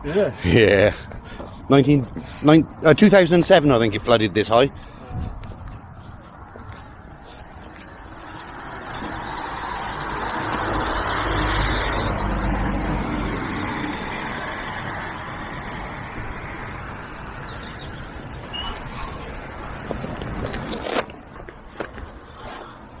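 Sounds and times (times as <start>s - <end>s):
vehicle passing by: 4.0s - 19.9s.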